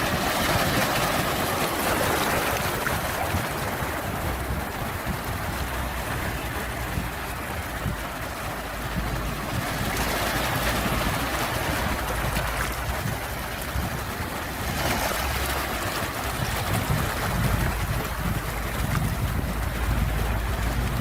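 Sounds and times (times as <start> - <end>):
sea waves washing ashore: 0.0 - 21.0.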